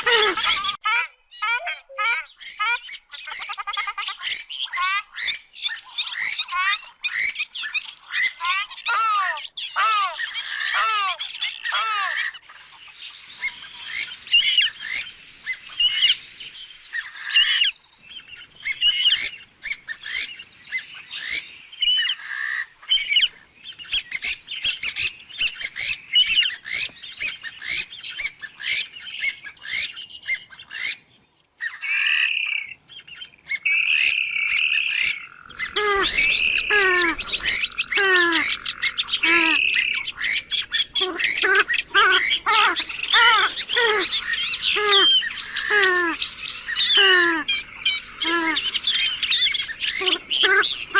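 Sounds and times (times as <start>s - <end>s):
bird shrill squealing calls: 2.2s - 31.0s, 33.5s - 50.9s
deeper bird calls: 33.6s - 50.9s.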